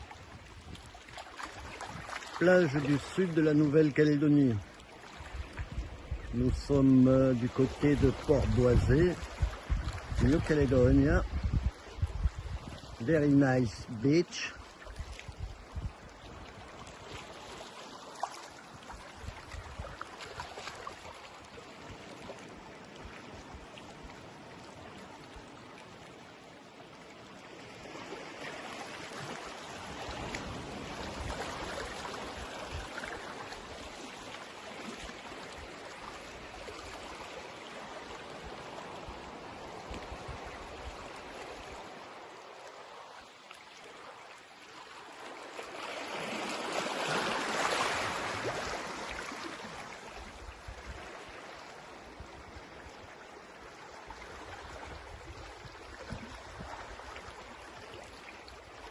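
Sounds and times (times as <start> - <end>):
small waves washing onto beach: 0.0 - 58.9.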